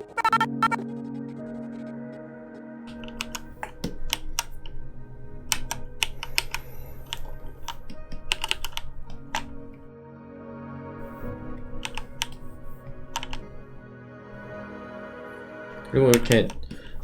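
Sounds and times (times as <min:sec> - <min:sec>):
soft background music: 0:00.0 - 0:17.0
keyboard keys clicking: 0:02.9 - 0:04.8, 0:05.5 - 0:09.8, 0:11.8 - 0:12.5, 0:13.1 - 0:13.6.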